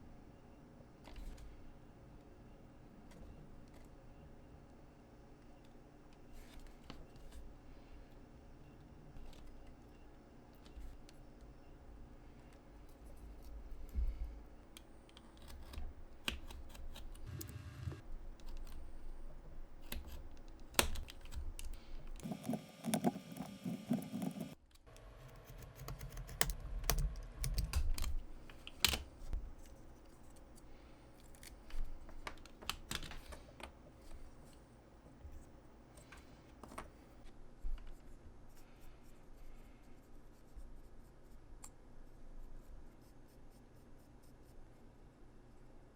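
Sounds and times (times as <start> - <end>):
clicks and taps of craft pieces: 19.8 - 29.7.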